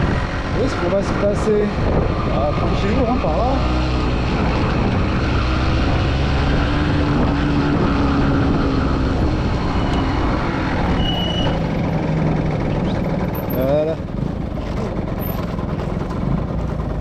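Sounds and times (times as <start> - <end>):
small motorcycle engine running: 9.8 - 17.0.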